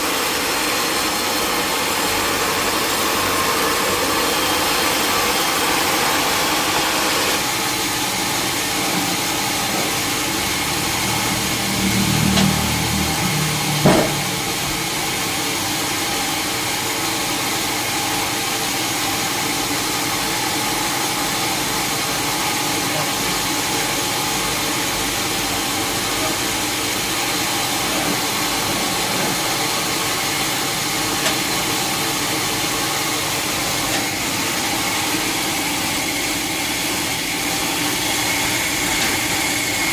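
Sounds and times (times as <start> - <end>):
sawmill machinery hum: 0.0 - 39.9
sharp knock: 13.8 - 14.3.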